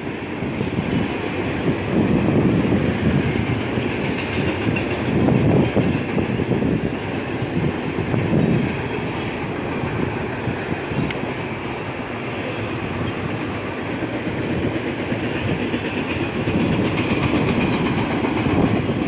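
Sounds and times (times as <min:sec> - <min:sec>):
clickety-clack over rail joints: 0:00.0 - 0:19.0
train wheels rumbling on rails: 0:00.0 - 0:19.0.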